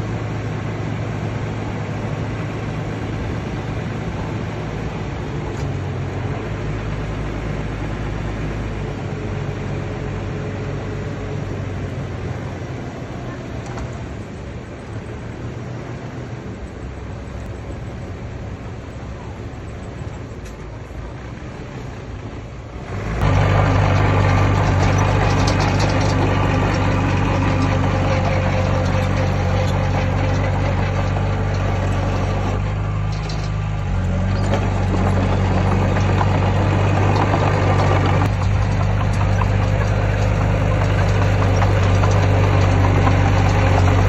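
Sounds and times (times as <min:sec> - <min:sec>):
heavy diesel engines running: 0:00.0 - 0:44.0.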